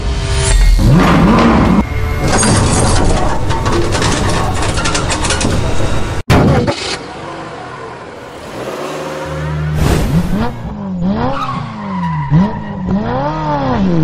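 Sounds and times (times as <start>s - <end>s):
car engine idling and revving: 6.0s - 14.0s.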